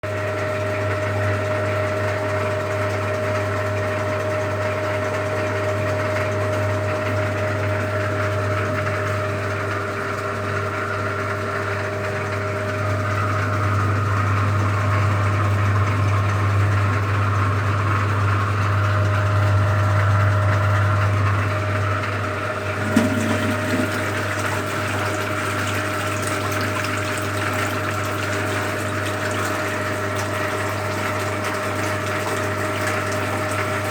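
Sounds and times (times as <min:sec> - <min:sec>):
washing machine motor humming: 0:00.0 - 0:33.9
water churning: 0:21.6 - 0:33.9.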